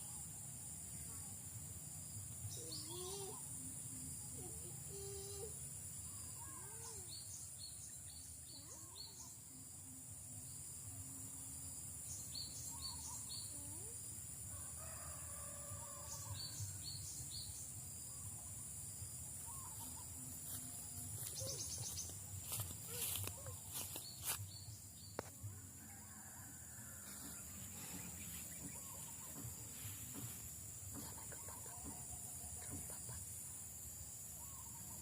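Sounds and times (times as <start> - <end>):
high insect drone: 0.0 - 35.0.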